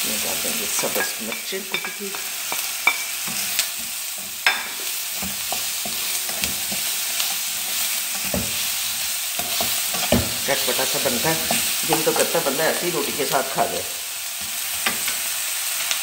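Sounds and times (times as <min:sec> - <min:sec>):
food sizzling in oil: 0:00.0 - 0:16.0
spatula scraping and tapping pan: 0:00.8 - 0:10.4, 0:14.4 - 0:15.2.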